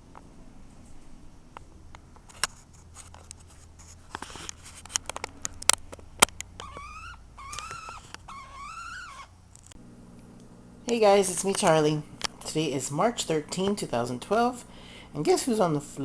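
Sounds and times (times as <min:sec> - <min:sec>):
parrot squawky calls: 0:06.6 - 0:09.4.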